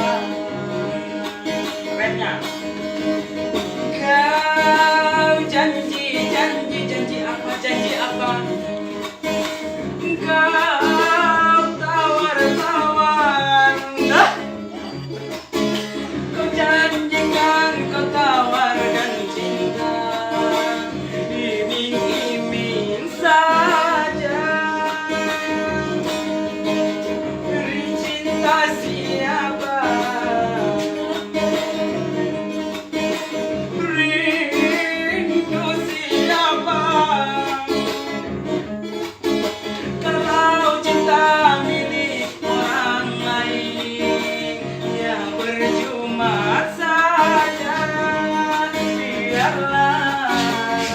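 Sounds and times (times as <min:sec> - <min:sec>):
guitar accompaniment: 0:00.0 - 0:50.9
person singing: 0:00.0 - 0:50.9.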